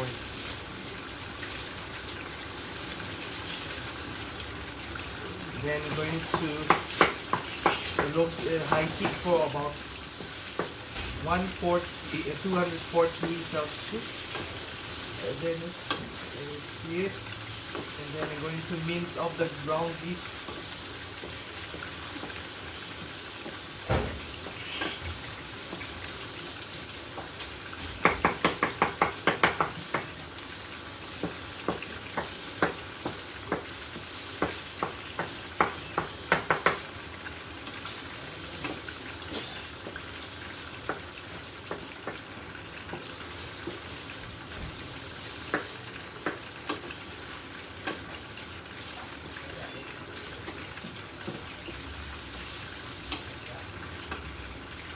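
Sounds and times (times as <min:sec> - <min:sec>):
meat sizzling in a pan: 0:00.0 - 0:54.9
utensil knocking against pan: 0:28.0 - 0:30.2, 0:34.4 - 0:36.8.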